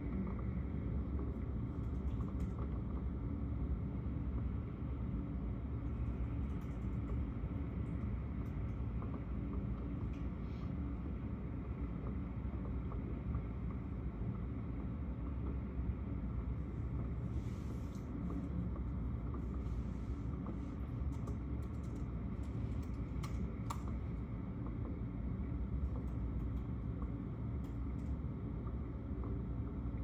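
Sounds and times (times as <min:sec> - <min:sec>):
low rumbling background noise: 0:00.0 - 0:30.0.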